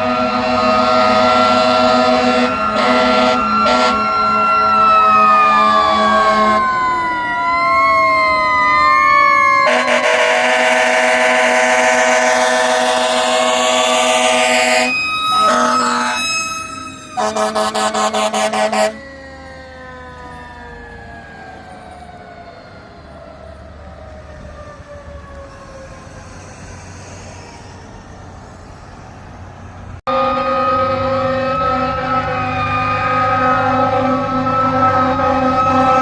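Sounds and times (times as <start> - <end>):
fire truck horn blast: 0.0 - 6.8, 9.6 - 19.0, 30.1 - 36.0
siren winding down: 0.0 - 36.0
rapid pulsing warning tone: 14.4 - 18.9.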